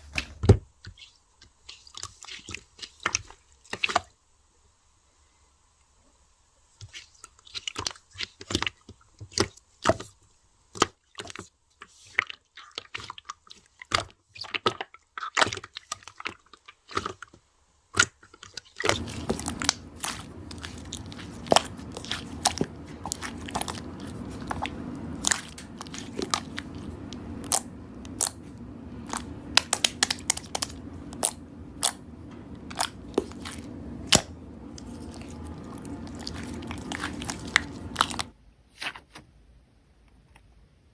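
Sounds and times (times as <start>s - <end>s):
steady background hiss: 0.0s - 10.8s, 18.7s - 38.7s
slime crackling and popping: 18.0s - 38.3s.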